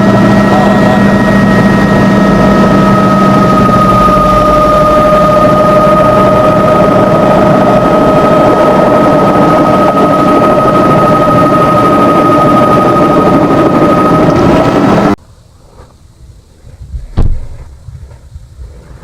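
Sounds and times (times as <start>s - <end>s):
helicopter rotor and engine noise: 0.0s - 15.2s.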